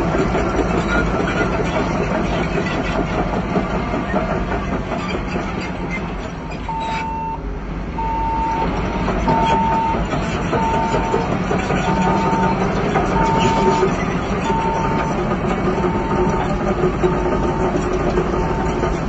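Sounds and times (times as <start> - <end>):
diesel earthmoving machine running: 0.0 - 19.0
reversing alarm beeping: 6.6 - 7.4, 8.0 - 16.6, 17.3 - 19.0.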